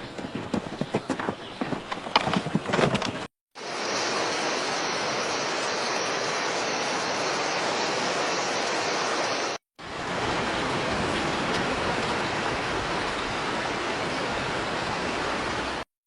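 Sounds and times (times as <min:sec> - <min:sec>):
steady rushing noise: 0:03.6 - 0:15.8.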